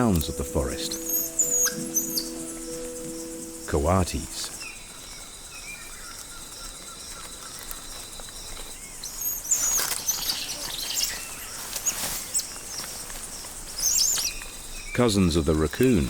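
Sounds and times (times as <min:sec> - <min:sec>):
quick high chirps: 0:00.0 - 0:04.7
high insect drone: 0:00.0 - 0:16.0.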